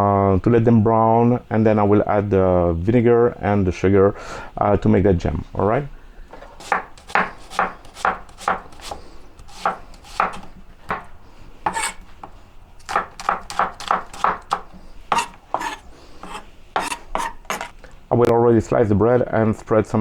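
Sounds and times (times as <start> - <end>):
knife slicing on cutting board: 6.6 - 11.0, 11.7 - 12.0, 12.8 - 17.8.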